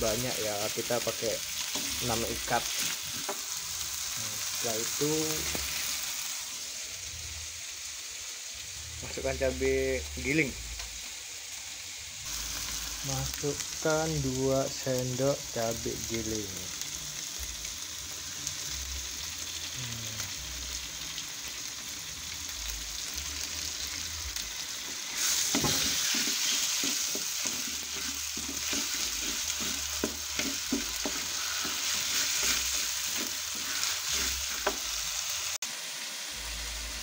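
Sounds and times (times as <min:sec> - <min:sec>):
paste sizzling in hot oil: 0:00.0 - 0:37.0
metal spoon scraping a pan: 0:25.1 - 0:35.0.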